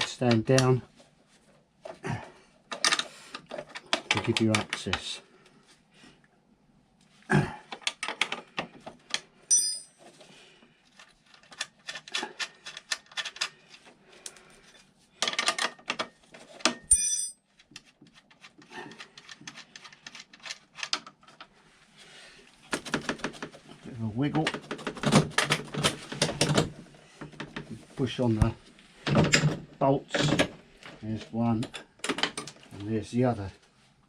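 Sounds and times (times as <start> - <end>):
tools clicking and scraping metal: 2.7 - 5.1, 11.0 - 21.5
ringing metal clinks: 9.5 - 10.0, 16.9 - 17.4.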